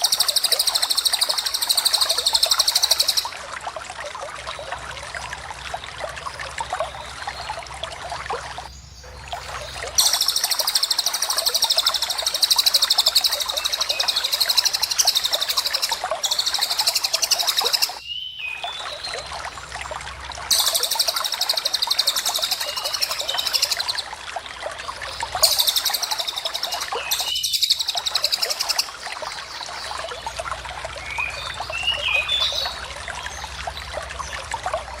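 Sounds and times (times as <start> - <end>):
flowing water rushing: 0.0 - 35.0
bird rapid trilling: 10.0 - 18.0
bird chirps: 10.0 - 19.1, 25.4 - 28.9.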